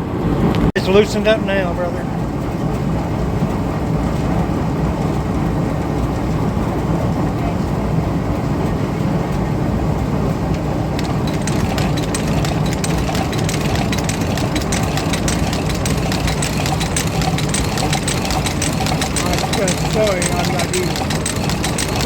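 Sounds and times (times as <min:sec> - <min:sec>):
sewing machine droning: 0:10.5 - 0:22.0
sewing machine stitching clicks: 0:11.0 - 0:22.0.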